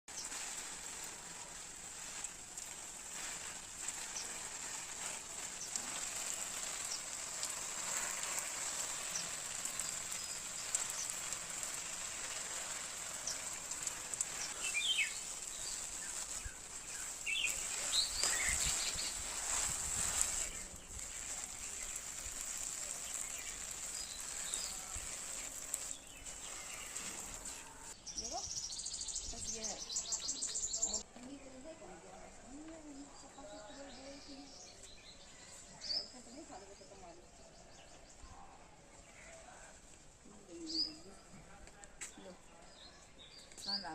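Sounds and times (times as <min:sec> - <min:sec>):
birds chirping: 0:00.1 - 0:31.8.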